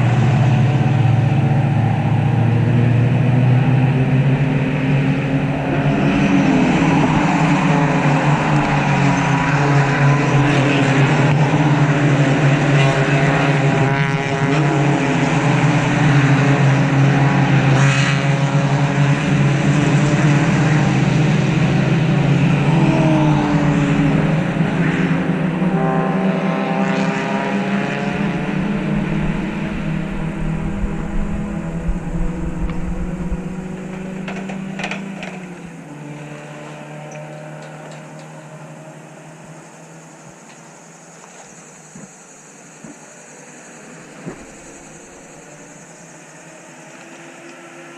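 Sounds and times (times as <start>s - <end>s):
race cars passing at high revs: 0.0s - 47.9s.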